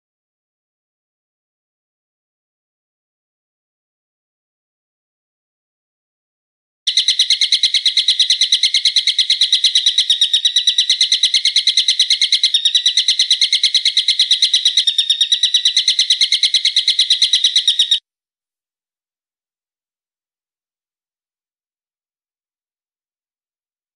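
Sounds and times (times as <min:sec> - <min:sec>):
songbird fast trill: 0:06.9 - 0:18.0.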